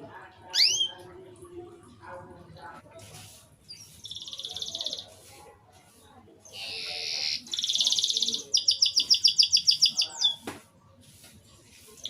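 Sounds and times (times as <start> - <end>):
canary singing: 0.5 - 1.1, 3.7 - 5.1, 6.4 - 10.4.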